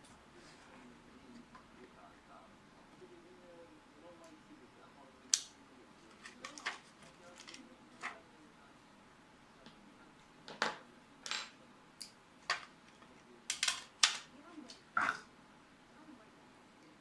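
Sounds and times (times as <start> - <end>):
small hard parts clicking: 13.5 - 14.3.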